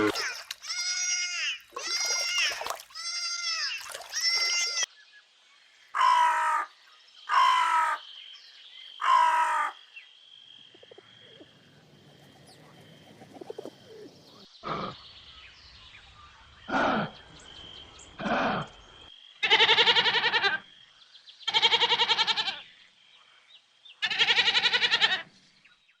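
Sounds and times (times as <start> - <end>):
animal calls: 0.0 - 4.9.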